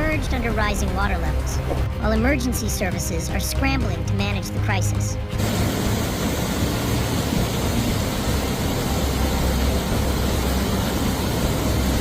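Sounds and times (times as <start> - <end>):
low steady hum: 5.3 - 12.0
water rushing in a storm: 5.4 - 12.0.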